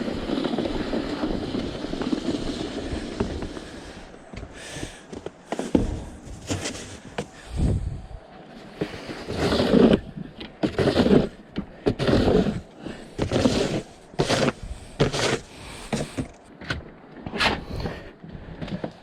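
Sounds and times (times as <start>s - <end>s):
snow shovel scraping snow: 0.0s - 4.1s, 4.7s - 7.5s, 8.8s - 16.2s.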